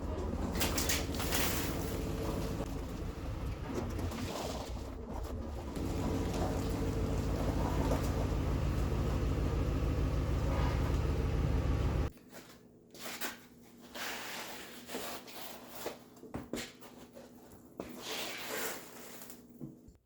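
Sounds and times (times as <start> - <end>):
motor humming: 0.0 - 12.1.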